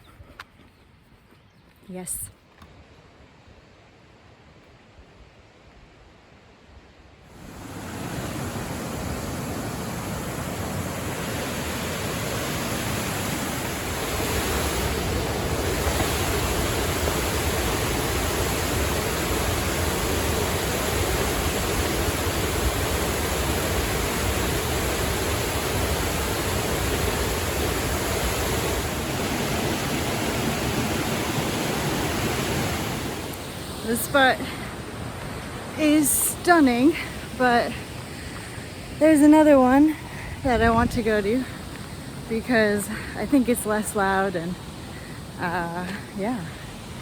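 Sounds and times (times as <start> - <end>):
waterfall rushing: 7.3 - 40.2.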